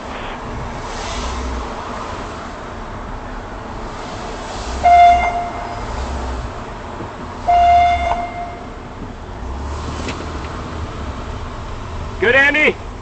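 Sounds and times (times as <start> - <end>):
outdoor noise with low rumbles: 0.0 - 13.0
vehicle horn blast: 4.8 - 5.9, 7.4 - 8.8.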